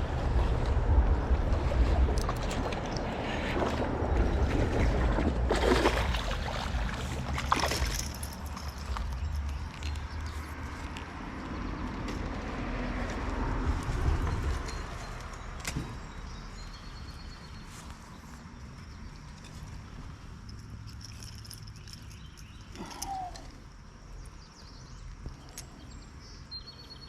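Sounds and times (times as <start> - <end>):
creek water rushing: 0.0 - 8.7
wind buffeting microphone: 0.0 - 10.5, 13.2 - 16.6.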